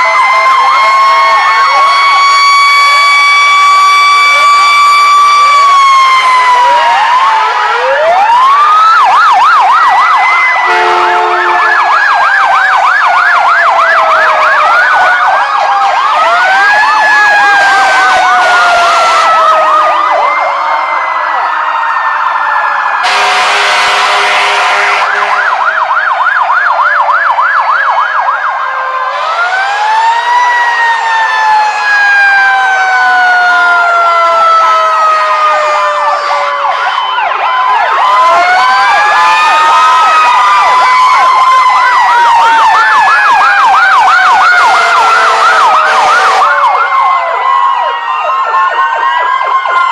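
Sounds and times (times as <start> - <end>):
wailing sirens: 0.0 - 49.9
yelp siren: 0.0 - 49.9
loud horn blasts: 10.6 - 11.9, 17.8 - 19.4, 23.0 - 25.6, 44.7 - 46.6.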